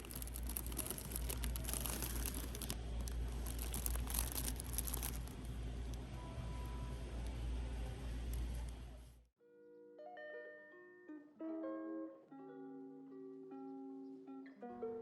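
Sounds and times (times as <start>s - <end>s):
faint crinkling: 0.0s - 6.1s
steady low hum: 0.0s - 9.3s.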